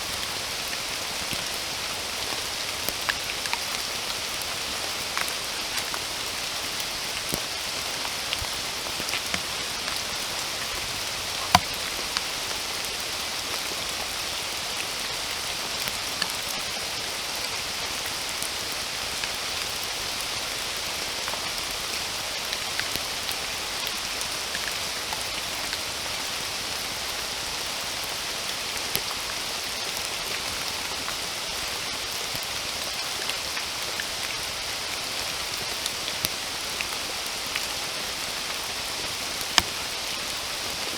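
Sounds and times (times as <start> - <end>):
steady rain hiss: 0.0 - 40.9
raindrops ticking: 5.2 - 13.0, 15.2 - 16.9, 39.4 - 40.1.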